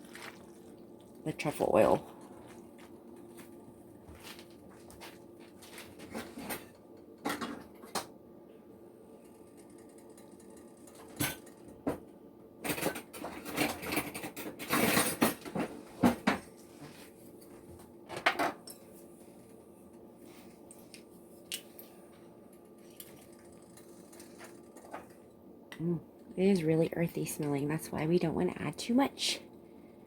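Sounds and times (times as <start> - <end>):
faint steady hum: 0.0 - 30.0
utensils and dishes clinking: 12.6 - 15.7.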